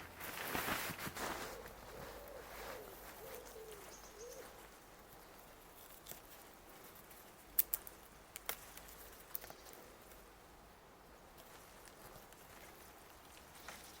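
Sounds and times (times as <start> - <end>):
bird hooting calls: 1.4 - 4.7
sharp snaps or clicks: 7.6 - 8.6.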